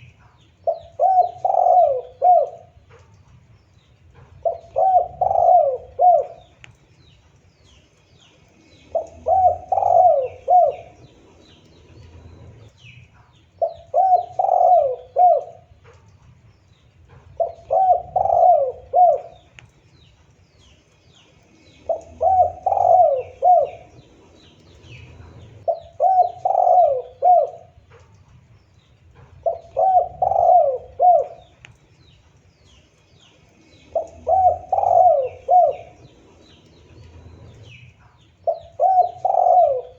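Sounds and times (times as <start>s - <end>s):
dove cooing: 0.0s - 3.1s, 4.1s - 6.8s, 8.5s - 13.0s, 13.6s - 16.0s, 17.0s - 19.6s, 21.4s - 28.1s, 29.1s - 31.7s, 32.6s - 39.9s
small birds chirping: 0.0s - 39.9s.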